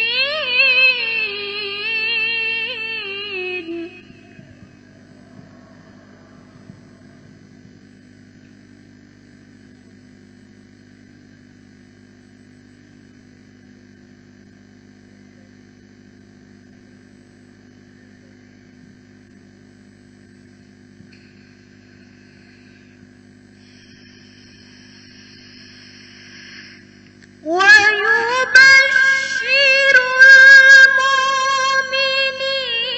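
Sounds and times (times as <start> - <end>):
low electrical hum: 0.0 - 32.9
higher hiss: 23.6 - 27.4.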